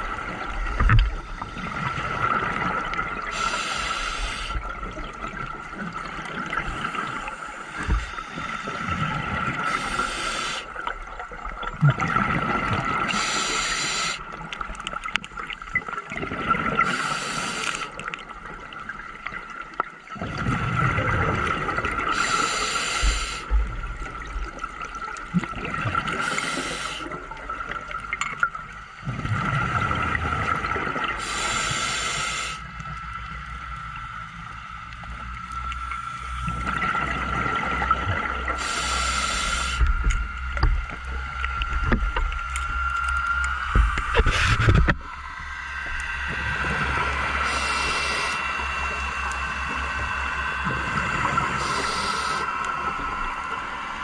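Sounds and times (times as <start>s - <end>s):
bubbling gurgles: 0.0s - 32.5s
regulator breathing hiss: 3.2s - 4.7s, 9.6s - 10.8s, 13.0s - 14.3s, 16.8s - 18.0s, 22.1s - 23.8s, 26.1s - 27.2s, 31.2s - 32.8s, 38.5s - 40.1s, 46.6s - 49.2s, 50.9s - 53.0s
thin whine: 13.0s - 14.3s, 31.2s - 54.0s.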